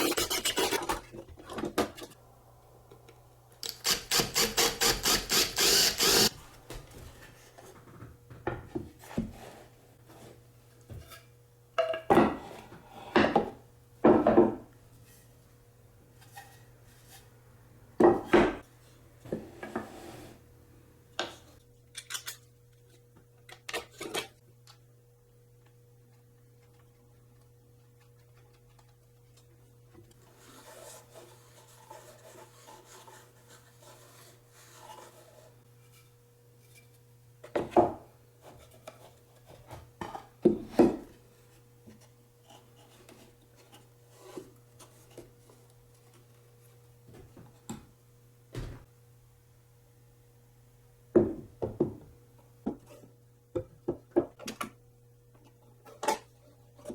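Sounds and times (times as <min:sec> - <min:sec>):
wood rubbing and scraping: 0:00.0 - 0:01.1.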